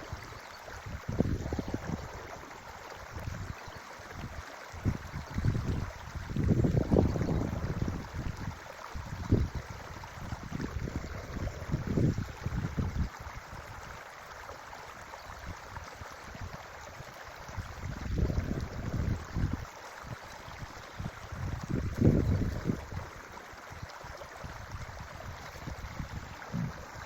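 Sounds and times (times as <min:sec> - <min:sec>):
wind buffeting microphone: 0:00.0 - 0:02.4, 0:03.1 - 0:13.7, 0:16.3 - 0:27.0
creek flowing: 0:00.0 - 0:27.0.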